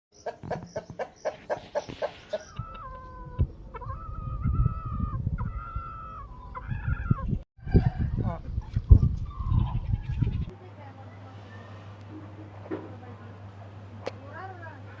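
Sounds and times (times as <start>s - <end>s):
rooster clucking: 0.2s - 4.7s
rooster crowing: 5.6s - 8.3s.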